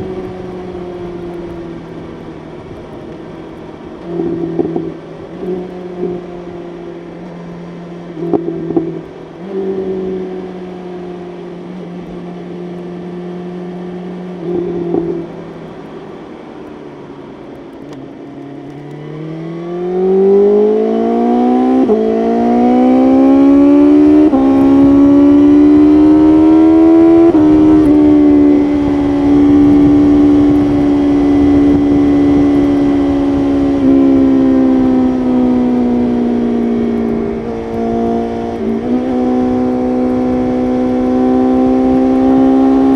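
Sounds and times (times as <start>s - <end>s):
motorcycle engine accelerating: 0.0s - 42.9s
rushing wind noise: 20.9s - 42.9s.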